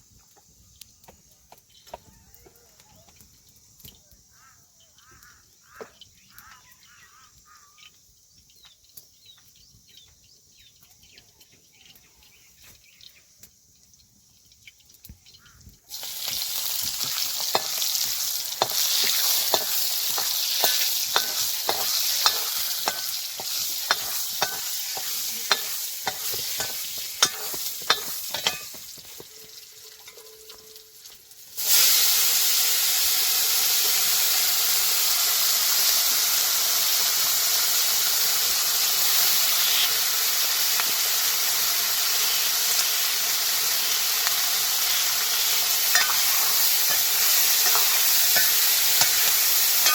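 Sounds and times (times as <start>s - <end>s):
small chirps: 0.0s - 31.5s, 39.0s - 41.0s, 42.0s - 49.9s
food sizzling in a pan: 0.0s - 49.9s
utensil scraping a pan: 16.6s - 29.2s, 44.9s - 49.9s.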